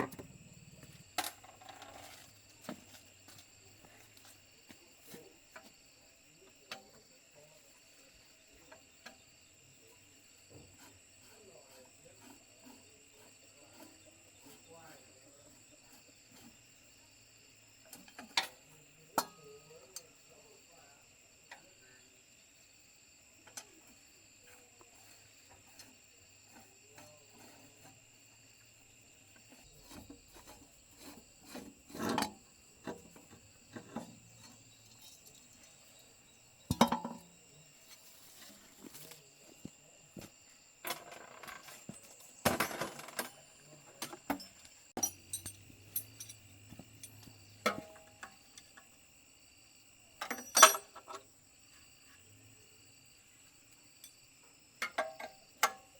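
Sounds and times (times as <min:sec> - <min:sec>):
insects chirring: 0:00.0 - 0:55.9
metal tools clinking and knocking: 0:29.4 - 0:36.1, 0:36.7 - 0:39.2, 0:40.2 - 0:48.9, 0:50.2 - 0:51.3, 0:54.8 - 0:55.9.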